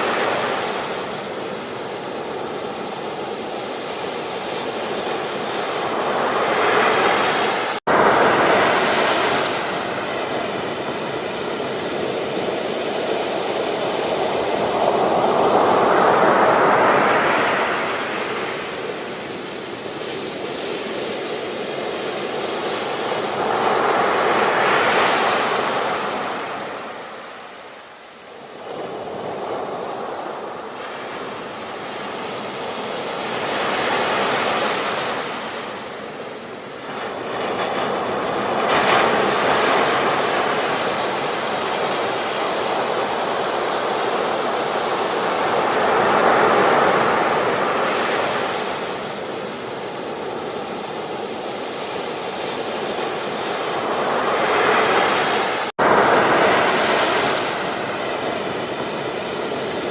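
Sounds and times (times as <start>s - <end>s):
ocean waves breaking on beach: 0.0s - 59.9s.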